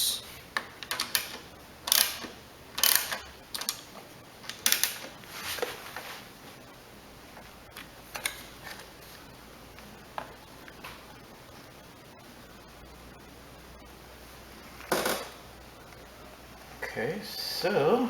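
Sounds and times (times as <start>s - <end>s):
ratchet wrench clicking: 0.9s - 3.8s.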